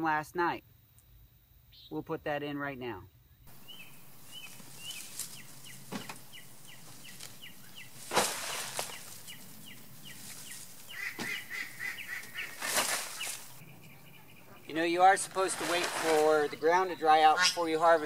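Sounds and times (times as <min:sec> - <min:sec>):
bird chirping: 0:03.0 - 0:18.0
plants rustling and knocking: 0:04.1 - 0:13.6, 0:15.0 - 0:16.6.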